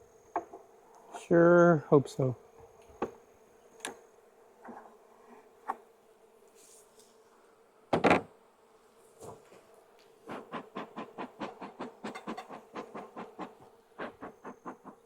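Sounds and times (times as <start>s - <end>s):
bees humming: 7.1s - 15.0s.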